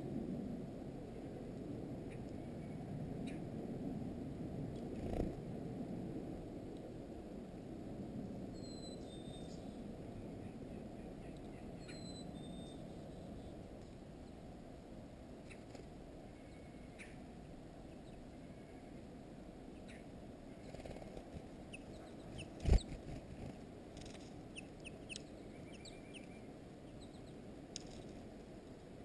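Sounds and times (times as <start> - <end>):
low background rumble: 0.0 - 29.0
songbirds chirping: 8.6 - 14.5, 15.3 - 23.0, 23.9 - 28.7.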